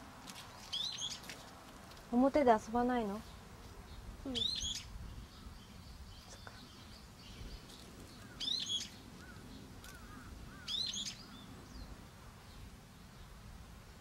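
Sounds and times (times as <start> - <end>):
soft bird chirps: 0.4 - 1.4, 3.2 - 13.4
shrill bird calls: 0.7 - 1.2, 4.4 - 5.7, 8.3 - 11.5.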